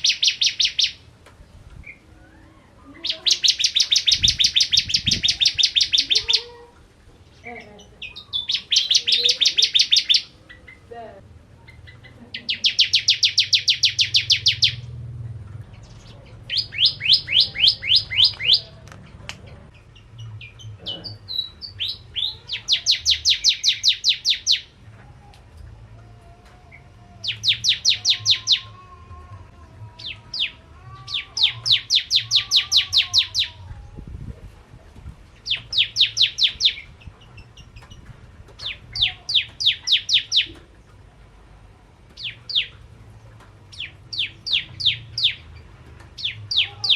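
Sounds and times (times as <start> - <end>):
bird singing rapid high chirps: 0.0 - 1.0, 3.0 - 6.4, 7.5 - 10.9, 11.7 - 15.0, 15.8 - 18.8, 19.7 - 24.8, 27.2 - 28.8, 30.0 - 33.6, 35.4 - 38.0, 38.6 - 40.6, 42.2 - 42.8, 43.7 - 46.9.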